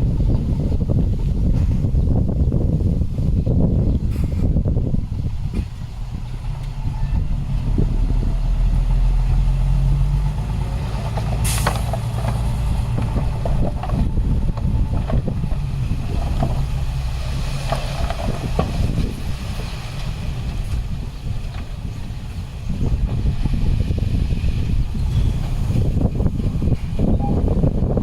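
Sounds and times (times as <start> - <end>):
diesel machinery rumbling: 0.0 - 28.0
clanks and rattles: 10.4 - 23.3.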